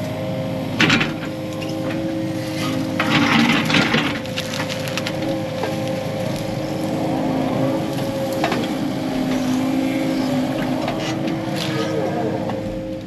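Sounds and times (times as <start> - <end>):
diesel engine running: 0.0 - 13.0
brush and rock cracking: 3.0 - 7.0.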